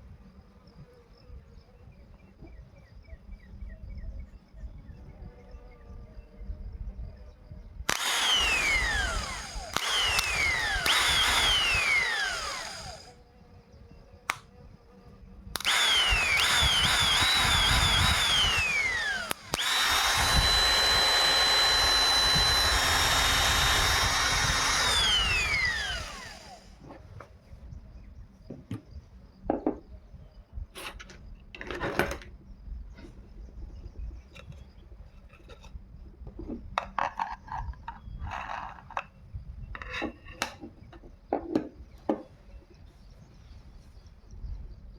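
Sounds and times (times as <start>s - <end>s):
small electric motor whining: 7.9s - 13.4s, 15.1s - 27.0s.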